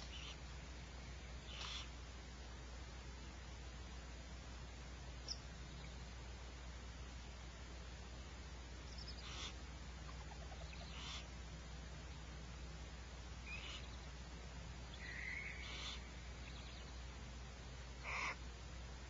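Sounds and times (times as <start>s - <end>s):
steady low hum: 0.0s - 19.0s
short high animal calls: 1.5s - 2.0s, 9.0s - 11.3s, 15.0s - 16.2s, 18.0s - 18.4s.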